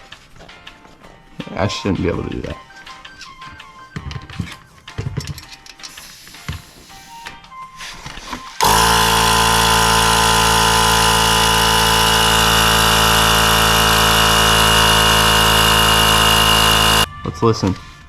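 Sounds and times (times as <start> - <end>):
air pump motor hum: 8.6 - 17.1.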